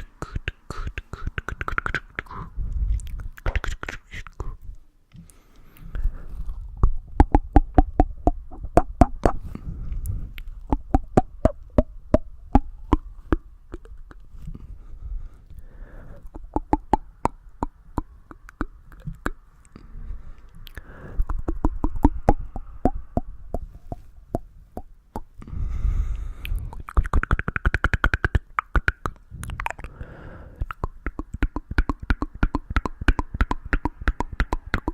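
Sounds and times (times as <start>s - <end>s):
soft low rumble: 2.2s - 3.6s, 4.4s - 27.0s.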